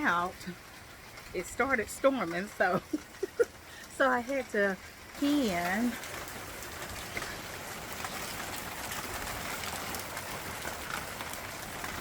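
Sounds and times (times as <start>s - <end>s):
rain falling: 0.0s - 12.0s
raindrops ticking: 0.0s - 12.0s.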